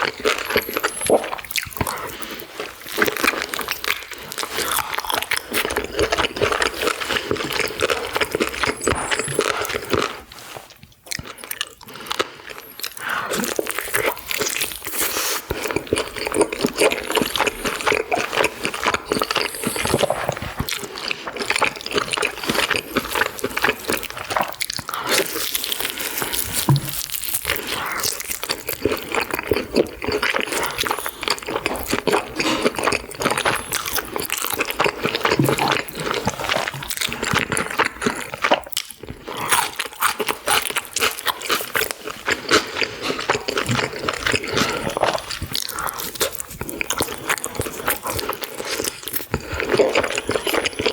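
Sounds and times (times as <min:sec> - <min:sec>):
mouth clicks and smacks: 0:00.0 - 0:50.9
wet chewing: 0:00.0 - 0:50.9.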